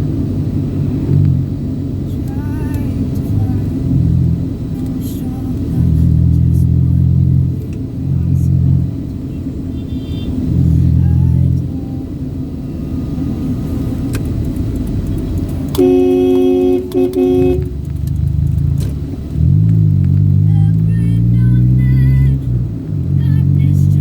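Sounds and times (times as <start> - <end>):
vehicle engine rumble: 0.0 - 24.0
car horn: 9.3 - 11.6, 15.6 - 17.9.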